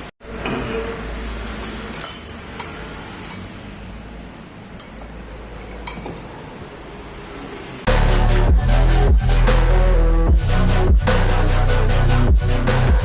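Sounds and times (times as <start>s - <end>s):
cutlery and dishes clinking: 0.4s - 3.7s, 4.7s - 6.5s.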